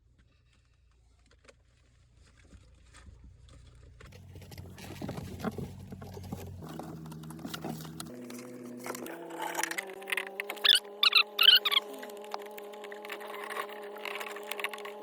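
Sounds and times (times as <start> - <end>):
clicks and rustling of parts: 4.1 - 10.8, 11.8 - 15.0.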